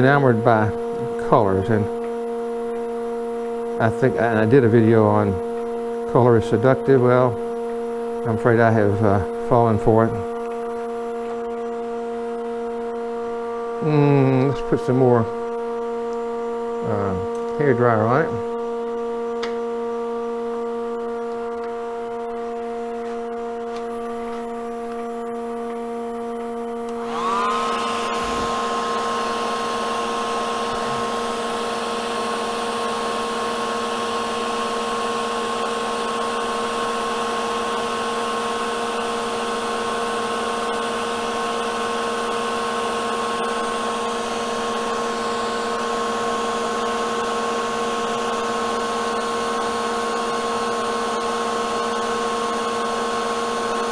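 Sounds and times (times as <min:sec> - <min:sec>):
steady machine hum: 0:00.0 - 0:53.9
hair dryer running: 0:26.9 - 0:53.9.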